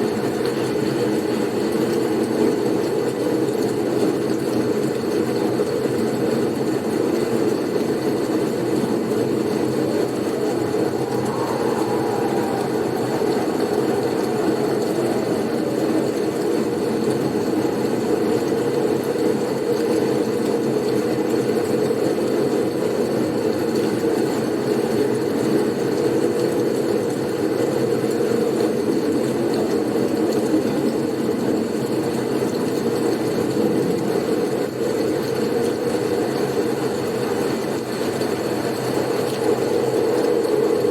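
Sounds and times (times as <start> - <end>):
blizzard wind rushing: 7.6 - 19.5, 37.8 - 40.9.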